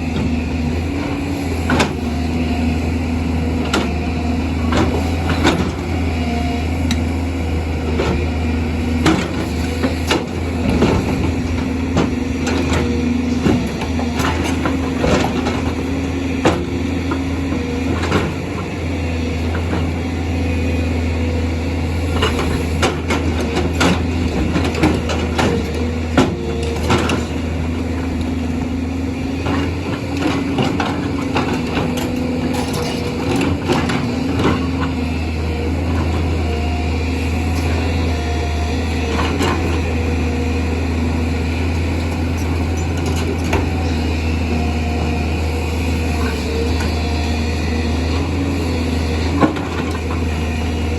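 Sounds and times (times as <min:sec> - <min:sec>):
diesel engine running under load: 0:00.0 - 0:50.9
hydraulic whine: 0:00.0 - 0:50.9.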